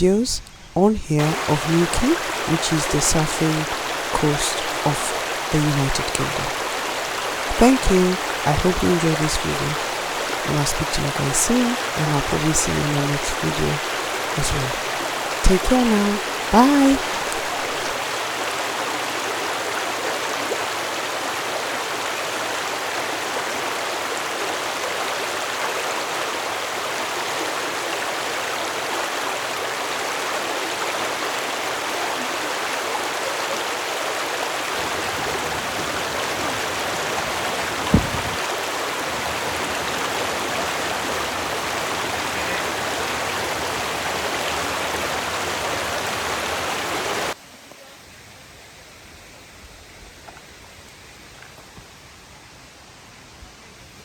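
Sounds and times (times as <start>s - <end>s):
waterfall rushing: 1.1s - 23.8s
low thump: 37.9s - 38.4s.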